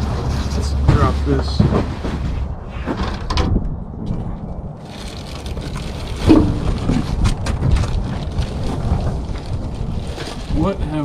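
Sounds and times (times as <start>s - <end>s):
cardboard packaging rustling: 4.8s - 10.8s.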